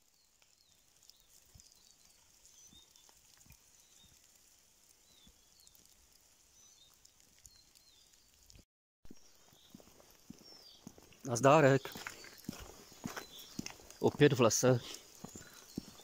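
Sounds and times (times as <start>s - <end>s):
small birds high calls: 0.0s - 8.5s, 9.1s - 16.0s
footsteps in snow: 9.3s - 16.0s.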